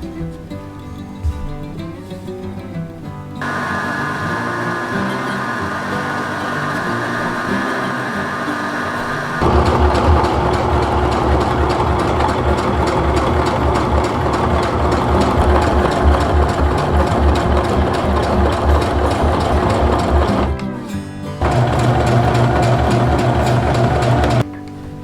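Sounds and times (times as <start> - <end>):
sewing machine running: 3.4 - 20.7, 21.4 - 24.4.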